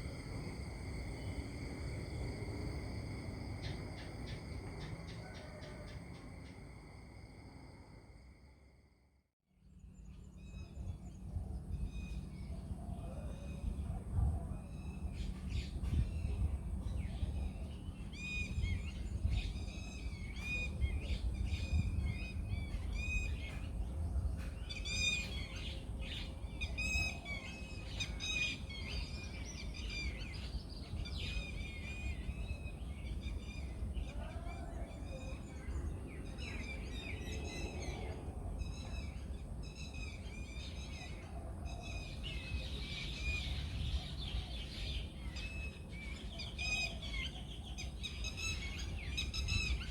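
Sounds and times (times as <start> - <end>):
steady low rumble: 0.0 - 8.5.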